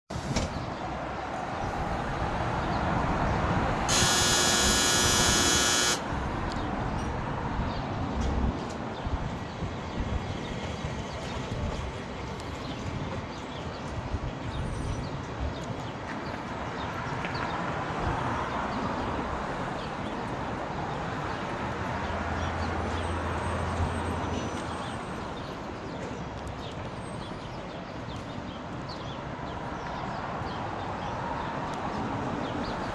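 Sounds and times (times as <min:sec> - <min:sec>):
urban background rumble: 0:00.1 - 0:32.9
electric buzzer: 0:03.9 - 0:06.1.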